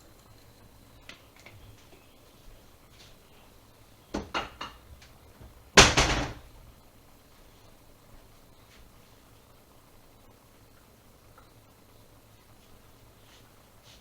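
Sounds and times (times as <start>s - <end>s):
loud bang with rattle: 5.8s - 6.5s.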